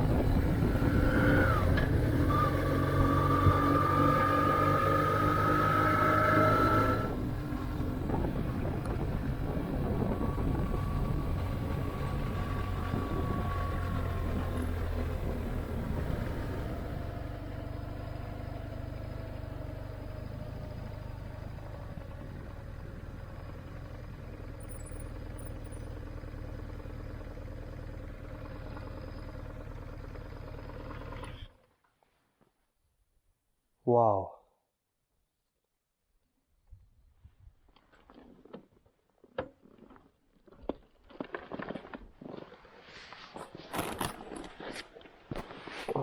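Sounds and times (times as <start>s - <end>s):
wind noise: 0.0s - 2.5s, 7.2s - 16.9s
motorcycle engine running: 0.0s - 31.7s
road noise: 0.0s - 31.7s.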